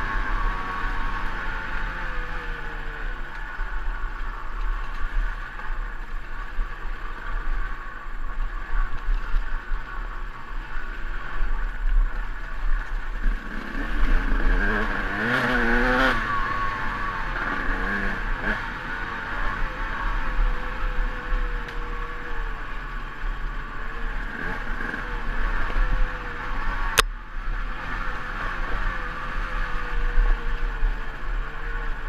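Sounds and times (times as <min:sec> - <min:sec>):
dirt bike engine revving: 0:00.0 - 0:03.2, 0:13.1 - 0:32.0.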